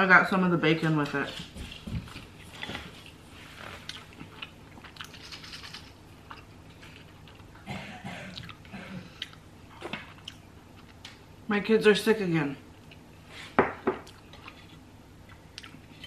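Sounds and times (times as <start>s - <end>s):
chewing with wet crunches: 2.1s - 7.6s, 8.3s - 11.2s, 14.0s - 16.0s.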